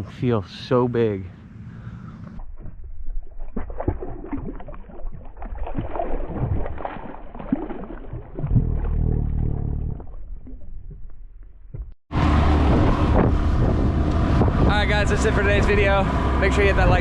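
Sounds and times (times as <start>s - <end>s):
water splashing against boat: 2.4s - 17.0s
low rumble: 8.1s - 17.0s.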